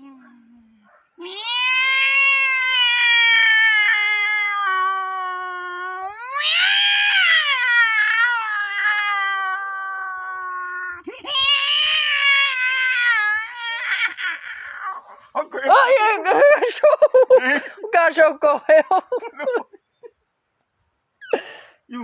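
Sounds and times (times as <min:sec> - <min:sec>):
person yowling like a cat: 0:01.2 - 0:15.2.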